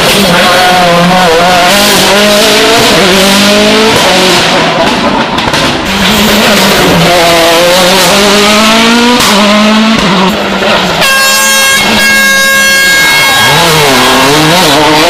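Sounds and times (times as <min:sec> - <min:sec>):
rally car engine revving: 0:00.0 - 0:11.1, 0:11.7 - 0:15.0
steady air horn: 0:11.0 - 0:14.8.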